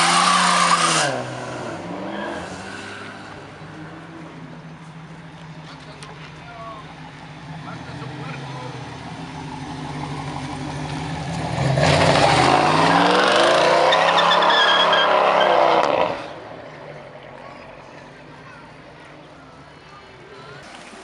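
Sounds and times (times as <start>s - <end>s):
car engine revving hard: 0.0s - 3.2s, 11.4s - 16.3s.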